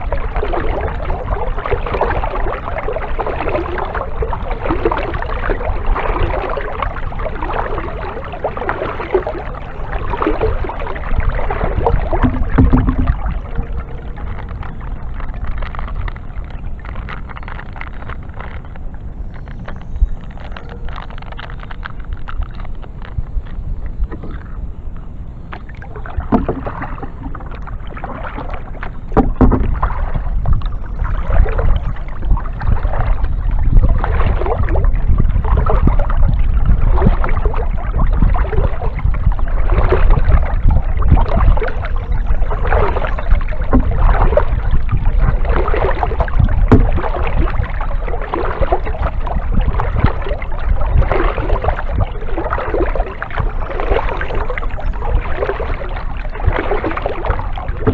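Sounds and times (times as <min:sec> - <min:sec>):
constant low rumble: 0:00.0 - 0:57.9
kayak paddle splashing: 0:00.0 - 0:57.9.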